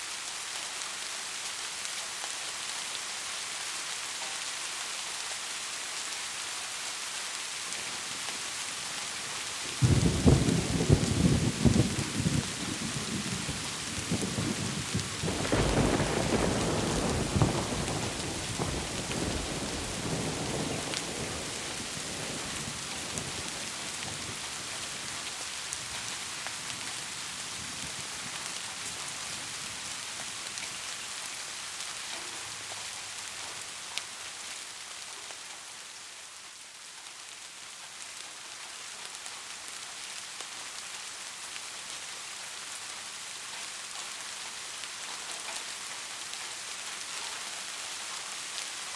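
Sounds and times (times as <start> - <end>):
steady rain: 0.0 - 48.9
thunder rolling: 9.8 - 23.4.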